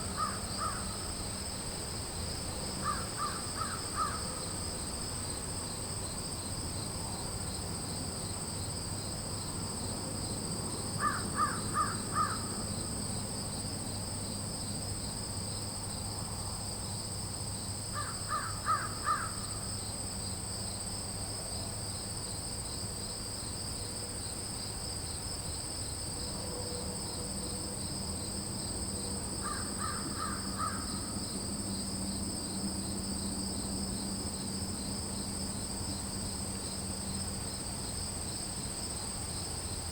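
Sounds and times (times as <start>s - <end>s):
insects chirping: 0.0s - 39.9s
crow cawing: 0.2s - 0.9s, 2.8s - 4.2s, 11.0s - 12.5s, 18.0s - 19.4s, 29.5s - 30.9s.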